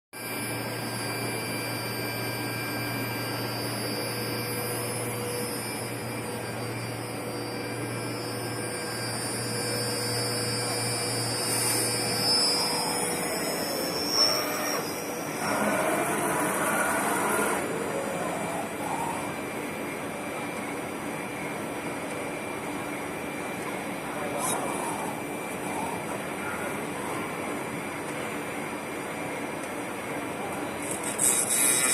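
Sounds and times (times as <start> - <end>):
milling machine motor hum and whine: 0.2 - 31.9
high gliding tone: 0.4 - 19.4.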